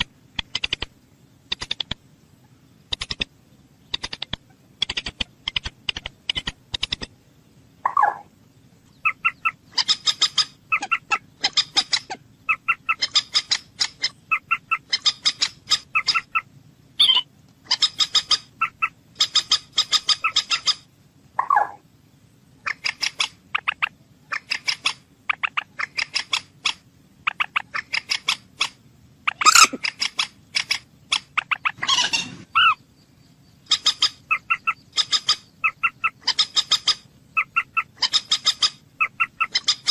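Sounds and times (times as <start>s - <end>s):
moorhen clicking calls: 0.0s - 7.2s, 7.8s - 8.3s, 8.9s - 21.8s, 22.6s - 32.8s, 33.5s - 39.9s
moorhen croaking: 7.8s - 8.3s, 8.9s - 21.9s, 22.6s - 39.9s.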